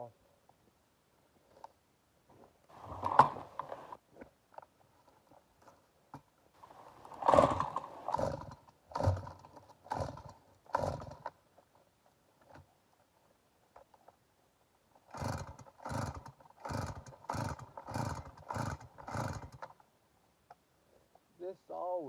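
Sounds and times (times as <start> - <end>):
chainsaw starter cord yanks: 2.7 - 4.0, 6.7 - 11.3, 15.1 - 19.8.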